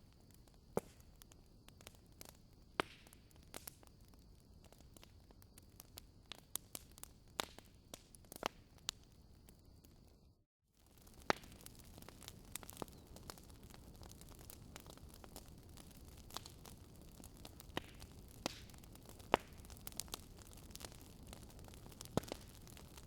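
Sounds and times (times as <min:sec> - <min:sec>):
wood fire crackling: 0:00.0 - 0:10.2, 0:10.8 - 0:23.0.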